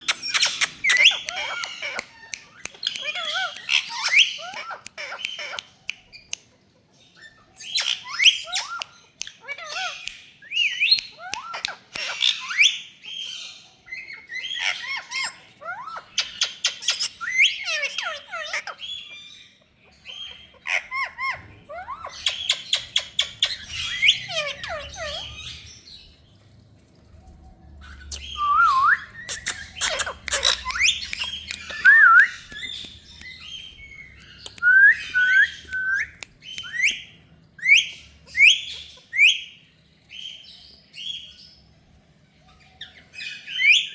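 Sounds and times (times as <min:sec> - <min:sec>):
parrot chirping and squawking: 0:00.0 - 0:06.3, 0:07.2 - 0:26.3, 0:27.2 - 0:41.5.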